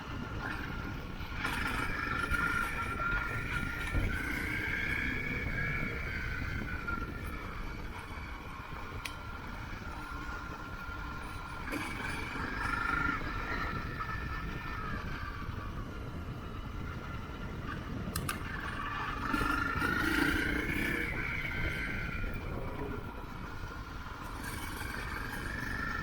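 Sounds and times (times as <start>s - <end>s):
motorcycle engine revving: 18.2s - 26.0s.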